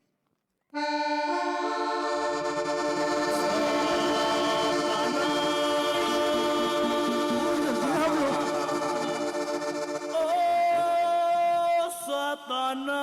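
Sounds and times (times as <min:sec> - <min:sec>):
bass line: 0:01.3 - 0:10.7
band playing instrumental music: 0:02.0 - 0:10.2.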